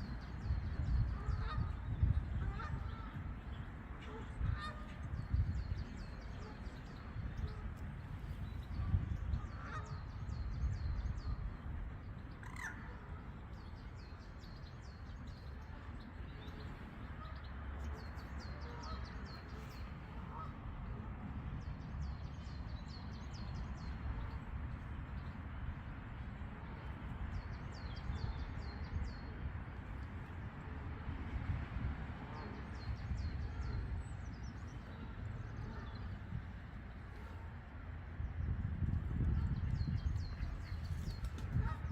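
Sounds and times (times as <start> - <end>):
steady low rumble: 0.0 - 41.9.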